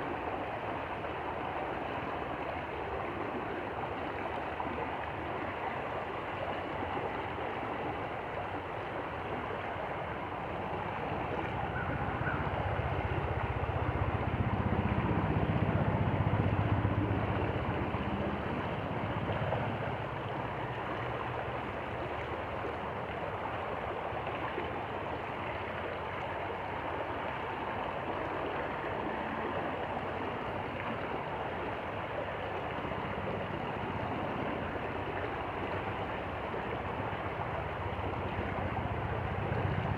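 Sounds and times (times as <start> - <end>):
stream water over stones: 0.0 - 39.9
passing engine rumble: 11.2 - 21.9, 33.2 - 39.9.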